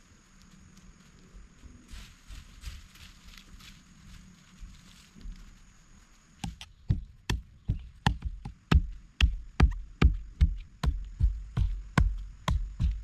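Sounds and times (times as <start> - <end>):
axe chopping wood: 6.4 - 13.0.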